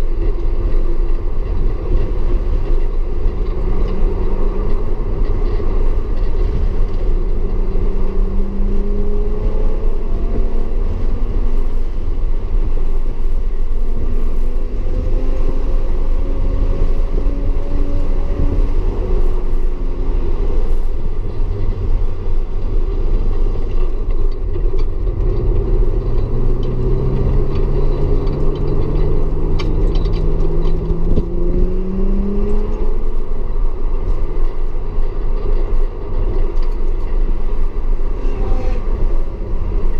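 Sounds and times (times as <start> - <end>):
car engine revving on race track: 0.0 - 39.9.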